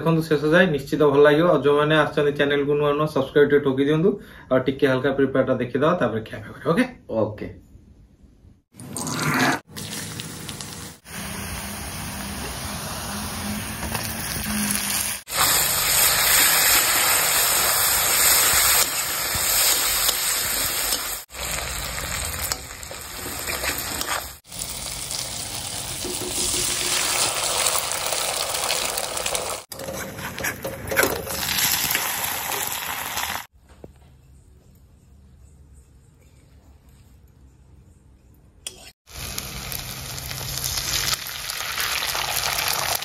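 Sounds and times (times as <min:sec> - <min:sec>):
food sizzling in hot oil: 0:09.1 - 0:29.7, 0:31.3 - 0:33.5, 0:39.1 - 0:43.0.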